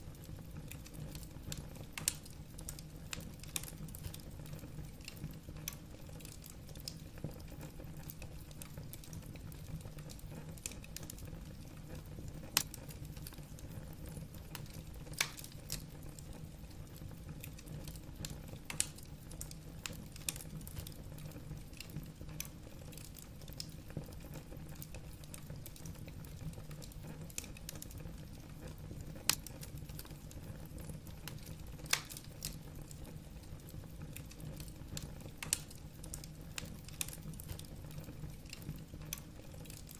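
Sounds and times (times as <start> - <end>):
logs crackling in fireplace: 0.0 - 39.9.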